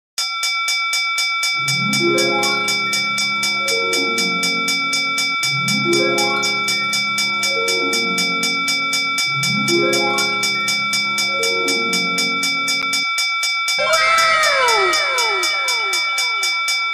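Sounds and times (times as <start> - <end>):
railroad crossing bell ringing: 0.4 - 16.9
low layered tone building in steps: 13.8 - 16.9.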